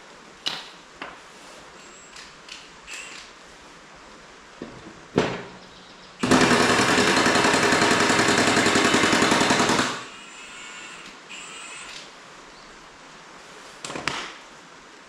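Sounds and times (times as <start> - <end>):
rapid mechanical hammering: 6.2 - 10.1.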